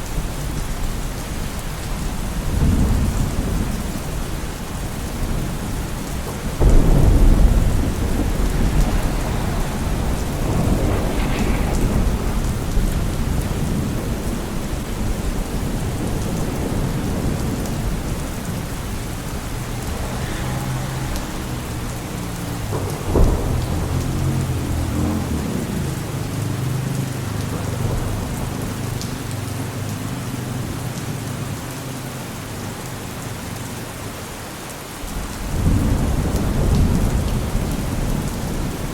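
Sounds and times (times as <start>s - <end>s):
thunder rumble: 0.0s - 31.9s, 35.0s - 38.9s
rain falling: 0.0s - 38.9s
thunder crack: 2.4s - 29.8s, 35.4s - 38.9s.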